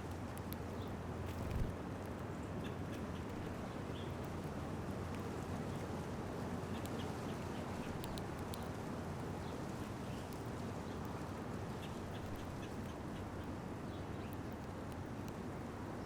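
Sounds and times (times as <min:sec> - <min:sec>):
songbirds chirping: 0:00.6 - 0:04.5, 0:06.6 - 0:14.8.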